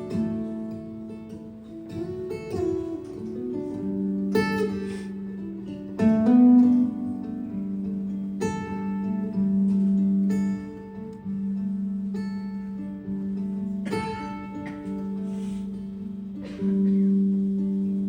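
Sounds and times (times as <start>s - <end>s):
strummed acoustic guitar chords: 0.0s - 18.0s.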